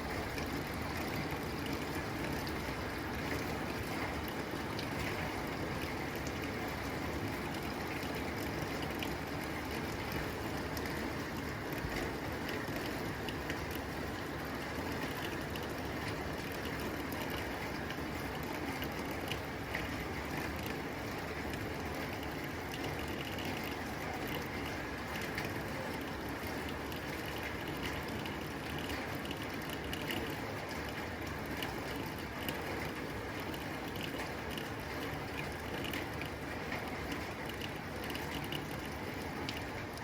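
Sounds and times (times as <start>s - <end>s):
rain drumming on a tin roof: 0.0s - 40.0s.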